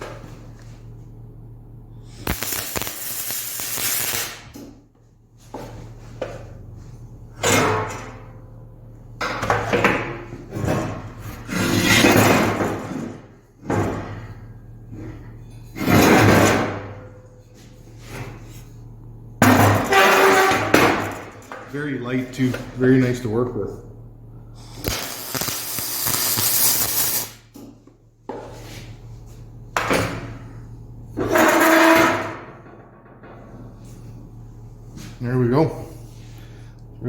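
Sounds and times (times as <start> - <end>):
steady low hum: 0.0 - 37.0
metal clatter and hiss: 2.2 - 4.7, 24.7 - 27.8.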